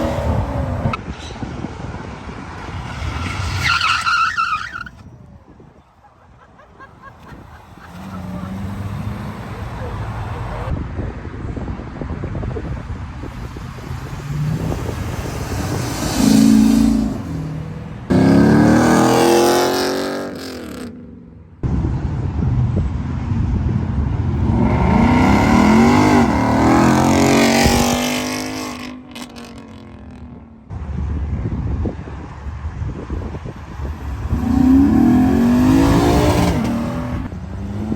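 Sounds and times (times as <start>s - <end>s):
car engines revving past: 0.0s - 4.0s, 7.2s - 10.8s, 12.7s - 21.3s, 23.7s - 30.7s, 33.4s - 37.9s.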